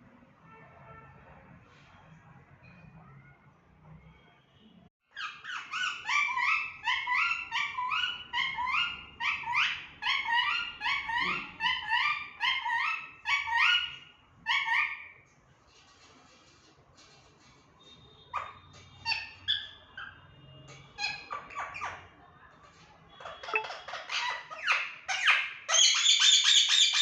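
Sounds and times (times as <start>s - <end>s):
parrot calling: 5.1s - 15.2s, 18.3s - 20.2s, 23.2s - 27.0s.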